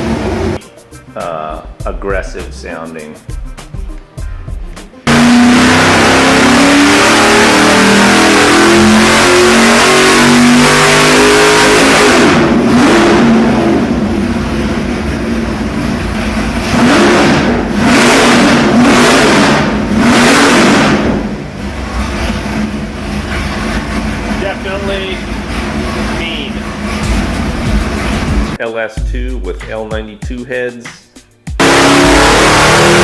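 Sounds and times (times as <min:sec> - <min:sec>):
engine revving at high revs: 0:00.0 - 0:00.6, 0:05.1 - 0:28.6, 0:31.6 - 0:33.0.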